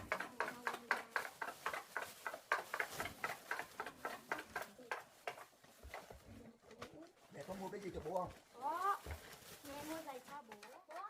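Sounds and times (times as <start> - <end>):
shopping bags crinkling: 7.0 - 11.0.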